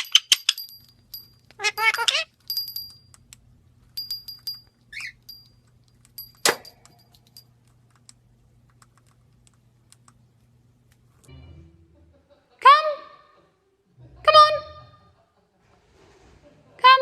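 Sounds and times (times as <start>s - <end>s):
light metallic clinks: 0.0s - 3.2s, 3.9s - 7.6s.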